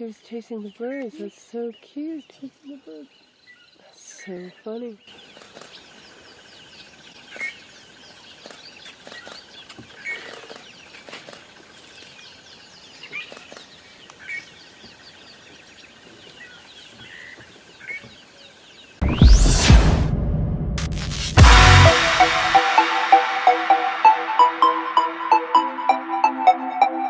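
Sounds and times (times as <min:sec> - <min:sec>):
flock of birds chirping: 0:00.0 - 0:19.0
steady trill: 0:19.0 - 0:27.0.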